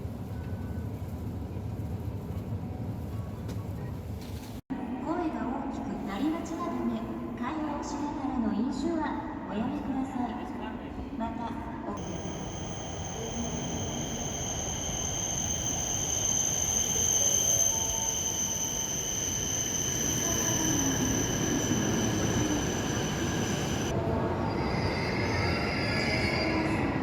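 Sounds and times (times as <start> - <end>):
high-pitched whine: 12.0 - 23.9
train rumbling on rails: 12.0 - 27.0.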